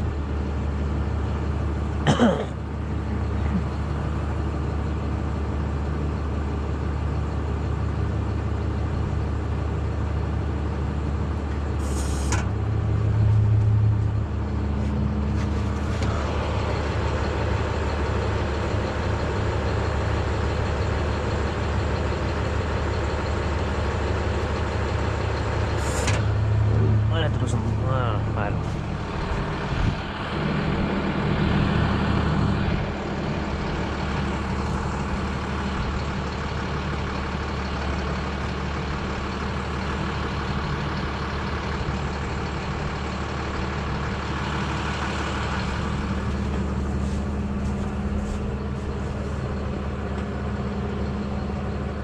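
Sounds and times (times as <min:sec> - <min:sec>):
truck engine humming: 0:00.0 - 0:52.0
short hiss: 0:11.8 - 0:12.4.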